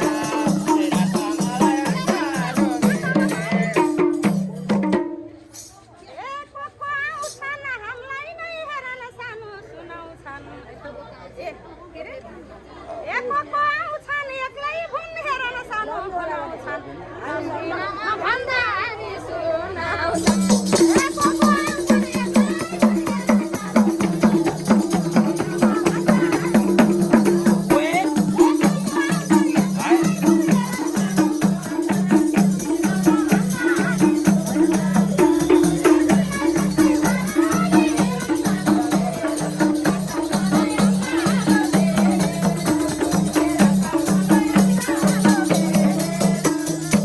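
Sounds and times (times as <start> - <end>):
shaken percussion: 0.0 - 6.0, 7.2 - 7.7, 20.1 - 47.0.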